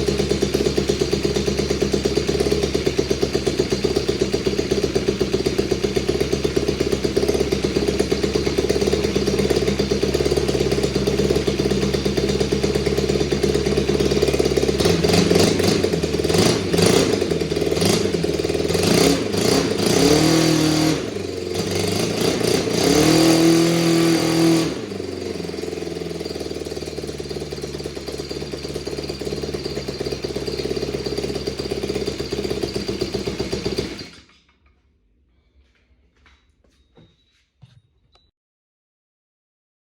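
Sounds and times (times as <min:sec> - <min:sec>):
small engine running and revving: 0:00.0 - 0:34.3.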